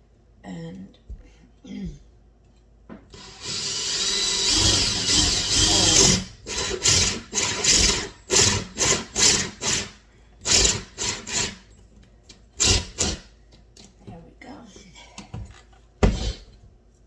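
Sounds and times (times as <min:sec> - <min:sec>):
power drill boring: 0:03.2 - 0:11.7, 0:12.6 - 0:13.2.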